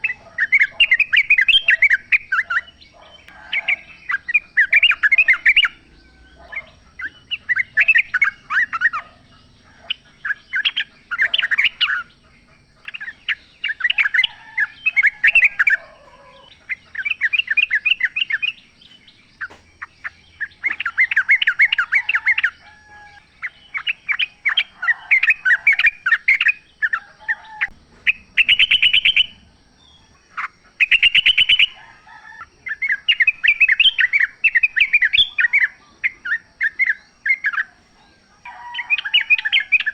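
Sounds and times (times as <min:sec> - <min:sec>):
bulbuls singing chattering notes: 0:00.0 - 0:39.9.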